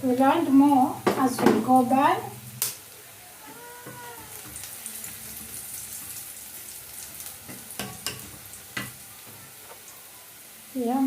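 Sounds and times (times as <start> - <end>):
onions sizzling in a pan: 0.0 - 11.0
taps against a pan: 7.5 - 9.4.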